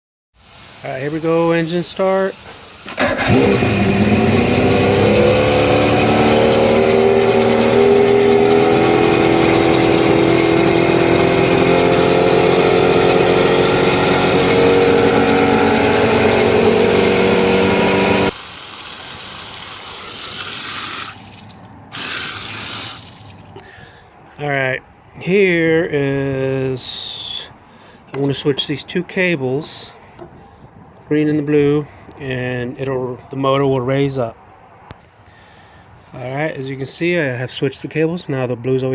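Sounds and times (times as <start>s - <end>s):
faint hiss: 0.4s - 3.1s
outboard motor running: 2.9s - 18.4s.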